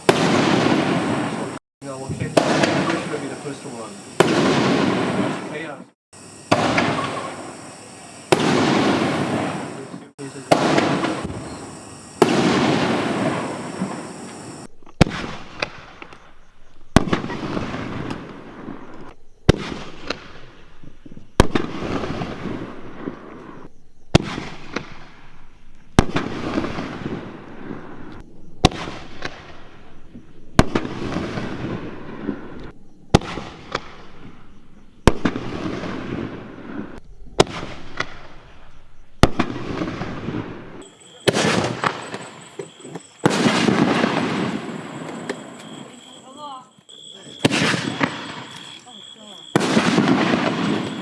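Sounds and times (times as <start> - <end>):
rumbling firework crackle: 0.0 - 46.5, 47.1 - 51.0
firework shell bangs: 2.0 - 3.6, 6.5 - 7.6, 10.5 - 11.6.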